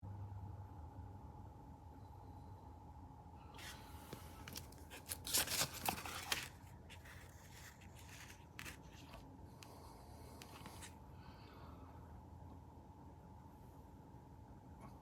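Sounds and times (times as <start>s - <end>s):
rustling and crinkling: 3.6s - 11.0s.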